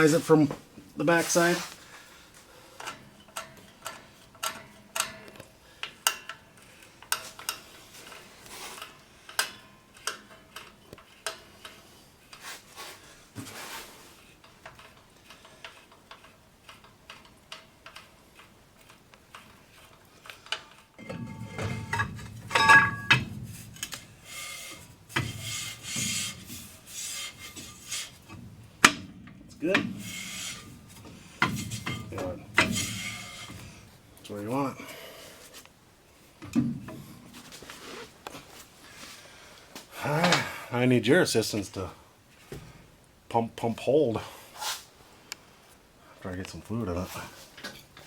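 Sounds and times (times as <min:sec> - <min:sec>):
brake drum rasping rub: 0:19.6 - 0:35.6.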